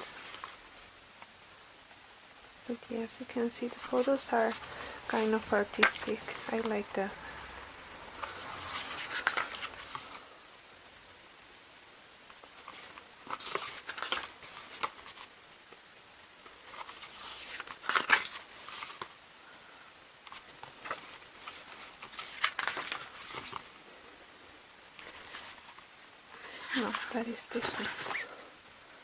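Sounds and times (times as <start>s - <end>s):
paper pages rustling: 0.0s - 0.6s, 3.4s - 6.9s, 8.1s - 10.2s, 12.3s - 15.3s, 16.4s - 19.2s, 20.2s - 23.8s, 24.9s - 28.4s.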